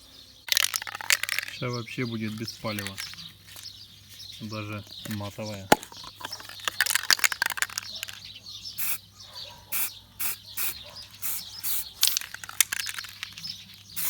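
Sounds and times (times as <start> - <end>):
spray-paint can hissing: 8.8 - 9.0, 9.7 - 13.4.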